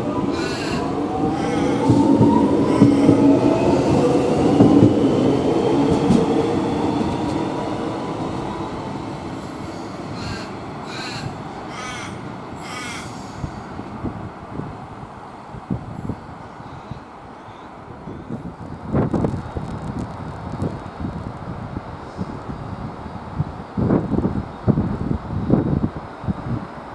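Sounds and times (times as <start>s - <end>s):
electric train motors whining: 0.0s - 13.9s
crows cawing: 0.3s - 3.2s, 10.1s - 13.7s.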